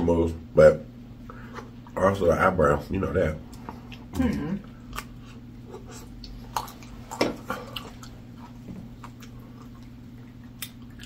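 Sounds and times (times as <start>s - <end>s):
faint low hum: 0.0s - 11.0s
soft chewing and wet mouth noises: 3.4s - 11.0s.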